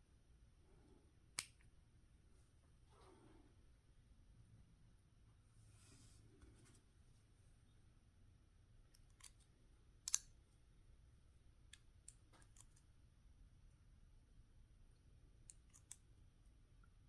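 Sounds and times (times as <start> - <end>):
faint clicks of small lock parts: 1.3 - 1.7, 8.8 - 10.4, 11.6 - 12.9, 15.4 - 16.1.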